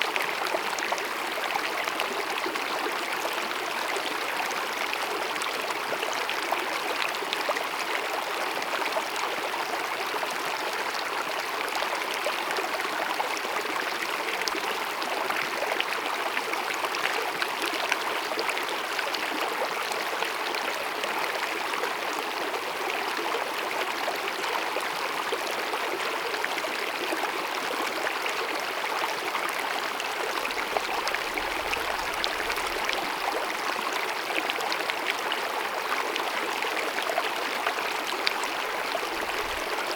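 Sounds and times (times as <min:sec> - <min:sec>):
stream babbling over rocks: 0:25.0 - 0:39.9.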